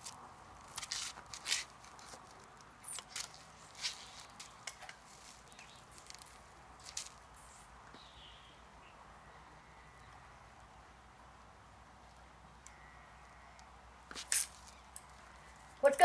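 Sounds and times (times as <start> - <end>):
rustling: 0.0 - 8.0.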